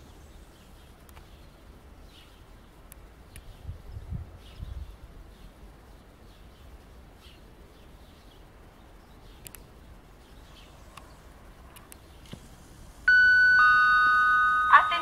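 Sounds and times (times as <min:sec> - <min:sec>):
sharp clicks: 0:09.4 - 0:09.7, 0:11.7 - 0:12.5.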